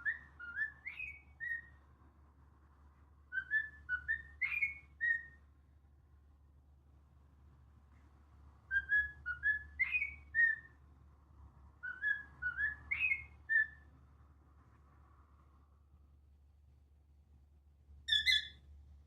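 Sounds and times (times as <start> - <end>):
cockatiel whistling: 0.0 - 1.7, 3.3 - 5.4, 8.7 - 10.7, 11.8 - 13.8, 18.1 - 18.6.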